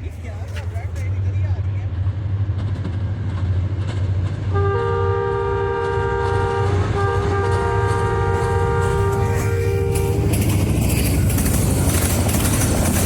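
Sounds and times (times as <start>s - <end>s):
low rumble of running train: 0.0s - 13.0s
locomotive air horn: 4.5s - 10.6s.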